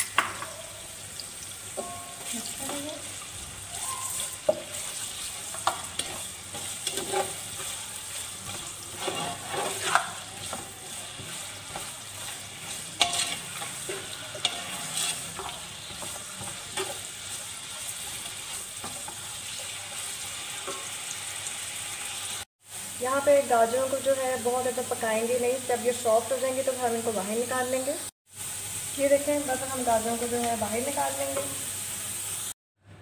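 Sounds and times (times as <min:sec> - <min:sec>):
carrots sizzling in hot oil: 0:00.0 - 0:32.6
wooden spatula scraping: 0:04.0 - 0:20.9.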